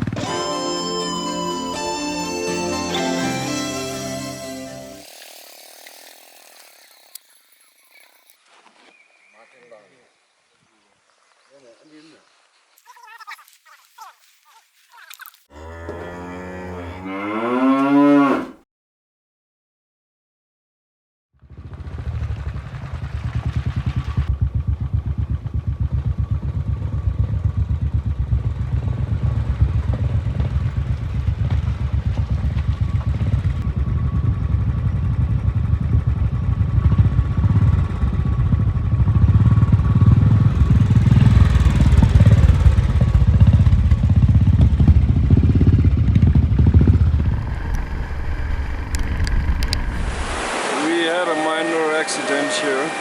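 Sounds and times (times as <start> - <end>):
motorcycle engine running: 0.0 - 0.6, 21.4 - 49.9.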